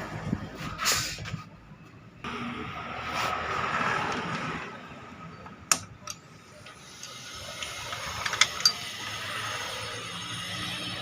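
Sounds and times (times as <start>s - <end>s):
metal tools clinking: 6.0s - 9.0s.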